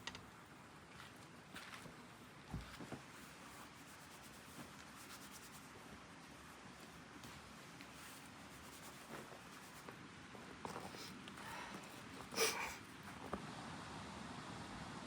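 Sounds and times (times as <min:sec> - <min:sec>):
faint scratching and rubbing: 0:02.7 - 0:13.3.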